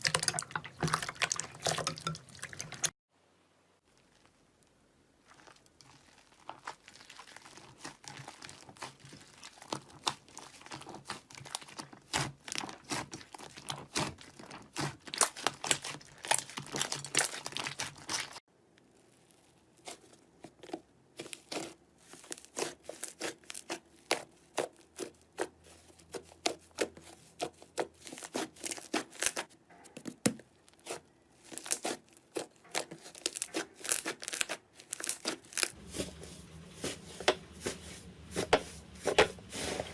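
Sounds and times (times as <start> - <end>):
slime crackling and popping: 3.9 - 20.1, 30.6 - 36.0.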